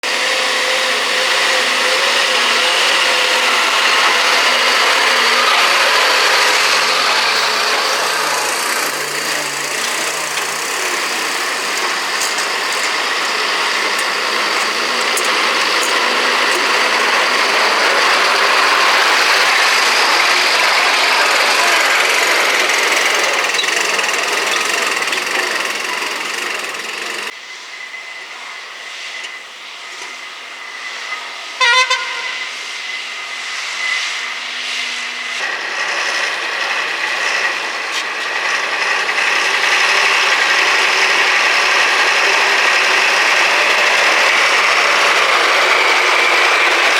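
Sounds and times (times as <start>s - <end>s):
truck driving past: 0.0s - 27.3s
truck horn blast: 0.3s - 26.8s, 31.6s - 32.6s.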